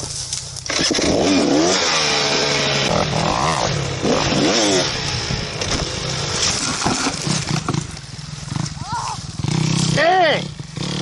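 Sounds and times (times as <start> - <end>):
dirt bike engine revving: 0.6 - 11.0.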